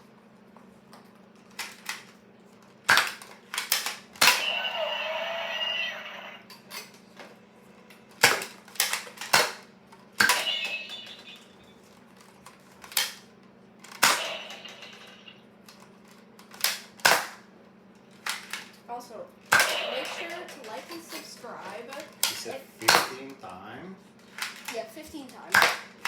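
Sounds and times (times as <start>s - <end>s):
toy blaster firing snaps: 2.9s - 4.8s, 8.2s - 11.0s, 13.9s - 15.2s, 16.6s - 17.4s, 19.5s - 20.8s, 22.2s - 23.2s, 25.5s - 26.0s.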